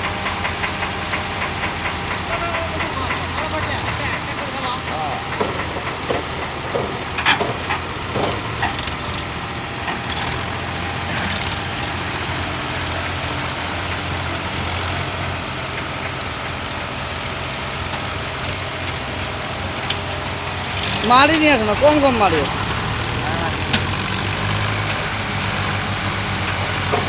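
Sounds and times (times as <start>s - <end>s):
tractor engine running: 0.0s - 27.0s
sharp knocks and clicks: 0.2s - 13.6s, 23.6s - 27.0s.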